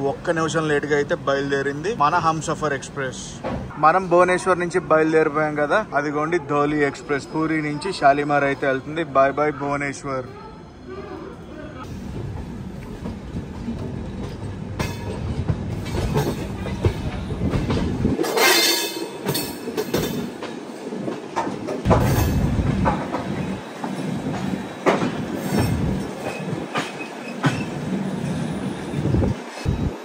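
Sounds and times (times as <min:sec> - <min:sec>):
train wheels clattering over rail joints: 0:12.4 - 0:28.4.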